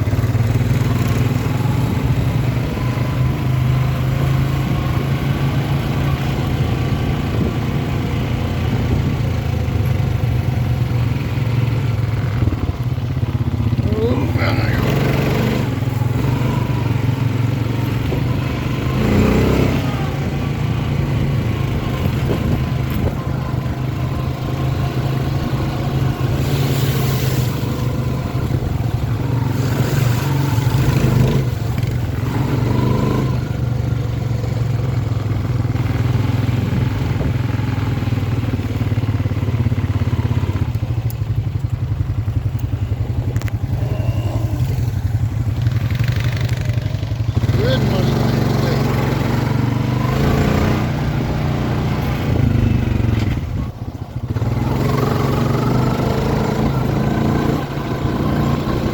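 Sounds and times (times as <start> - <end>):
engine running: 0.0 - 58.9.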